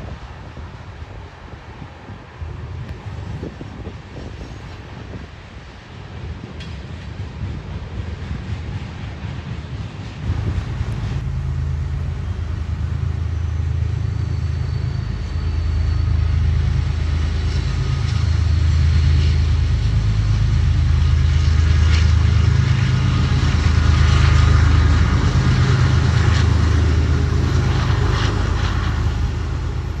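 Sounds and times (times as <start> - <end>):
diesel locomotive engine hum: 0.0 - 30.0
wheels clicking on rails: 10.2 - 30.0
wheel squeal: 10.4 - 18.3.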